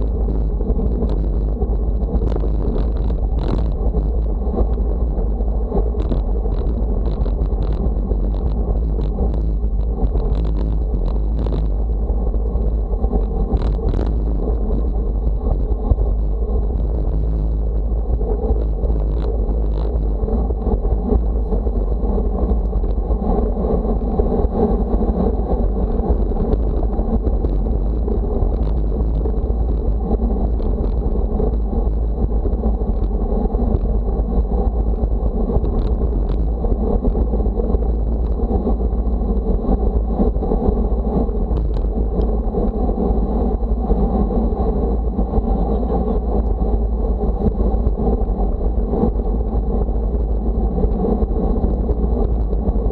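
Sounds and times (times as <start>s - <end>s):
rushing road noise: 0.0s - 52.9s
wind buffeting microphone: 0.0s - 52.9s.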